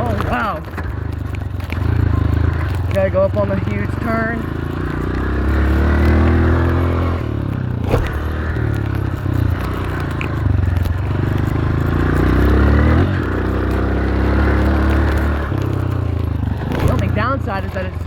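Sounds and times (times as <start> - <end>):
dirt bike engine revving: 0.0 - 18.0
sharp crack: 5.9 - 12.1.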